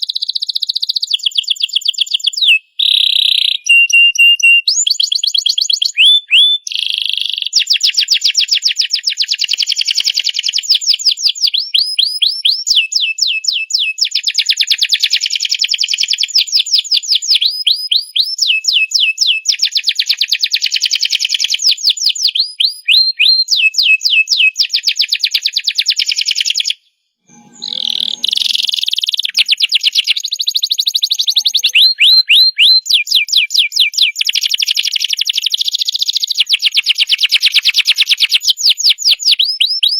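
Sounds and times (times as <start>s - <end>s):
canary singing: 5.8s - 7.6s, 26.3s - 37.6s.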